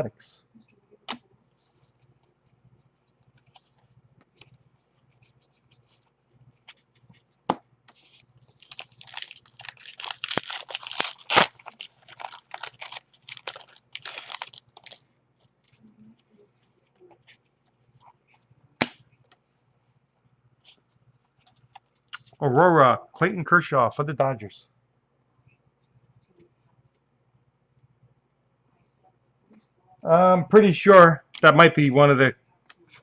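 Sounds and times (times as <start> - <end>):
packaging tearing and crinkling: 8.5 - 15.0.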